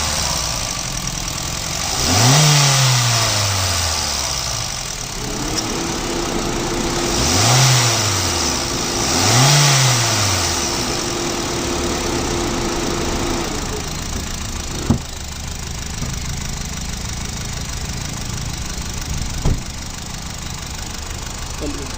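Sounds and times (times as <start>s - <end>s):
car engine idling and revving: 0.0s - 21.9s.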